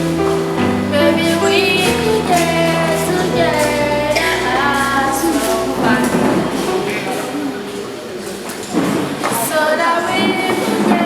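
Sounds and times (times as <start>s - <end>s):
person singing slow melody: 0.0s - 7.2s
held keyboard chords: 0.0s - 8.2s.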